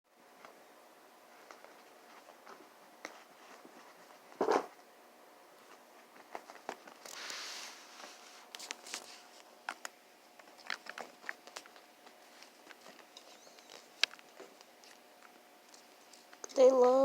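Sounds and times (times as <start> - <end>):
puppies scuffling and clicking: 8.6 - 16.9.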